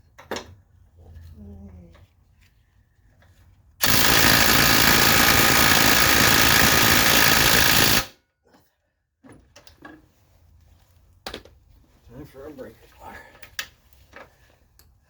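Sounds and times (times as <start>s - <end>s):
pneumatic impact tool hammering: 3.8s - 8.1s.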